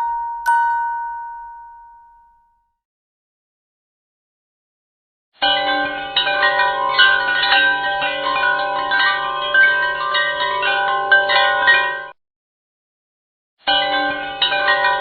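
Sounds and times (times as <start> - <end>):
bell-like chiming music: 0.0 - 2.6, 5.4 - 12.2, 13.7 - 15.0.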